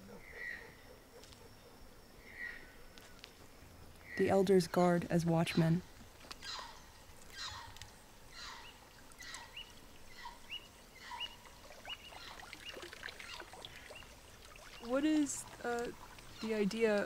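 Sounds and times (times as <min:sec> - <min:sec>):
high bird chirps: 0:06.4 - 0:15.4.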